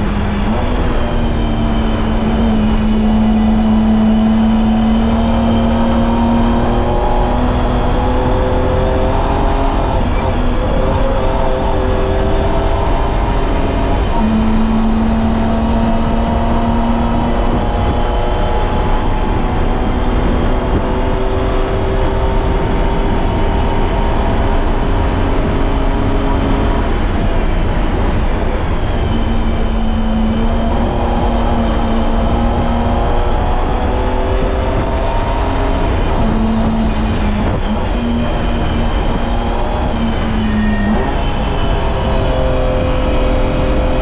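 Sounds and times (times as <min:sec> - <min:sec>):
car engine revving under load: 0:00.0 - 0:44.0
tyre and road noise: 0:00.0 - 0:44.0.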